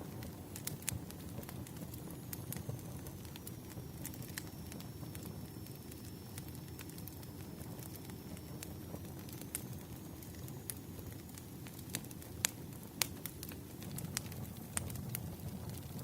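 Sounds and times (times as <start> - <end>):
campfire crackling: 0.0 - 16.0
sharp pops of fire: 0.1 - 16.0.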